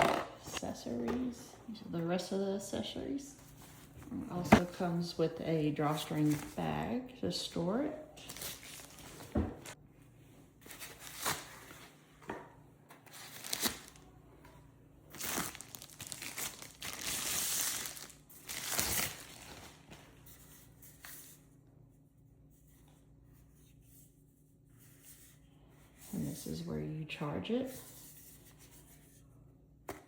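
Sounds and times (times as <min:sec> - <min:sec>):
packaging rustling: 0:13.1 - 0:14.0, 0:15.1 - 0:20.1.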